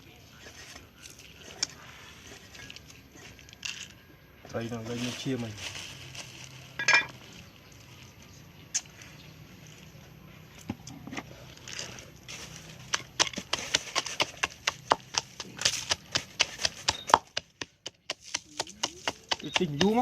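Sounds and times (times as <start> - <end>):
knife chopping on wooden board: 12.9 - 20.0.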